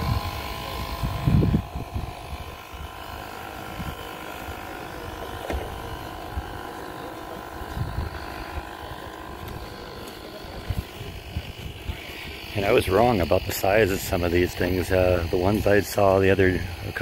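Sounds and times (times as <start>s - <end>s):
wind rumbling on microphone: 0.0s - 4.1s, 7.6s - 8.7s, 10.5s - 12.1s
jet turbine engine whining: 0.0s - 17.0s.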